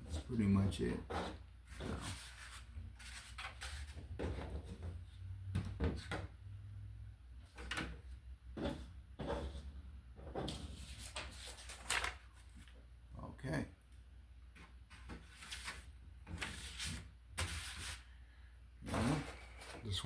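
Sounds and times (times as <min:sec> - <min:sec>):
packaging rustling: 0:11.2 - 0:12.8.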